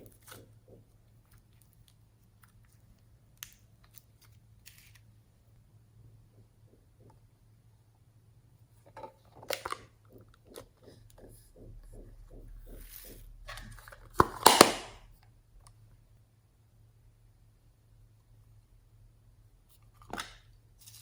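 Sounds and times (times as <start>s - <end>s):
slime squelching: 9.2s - 15.1s
sharp crackling pops: 13.6s - 15.0s.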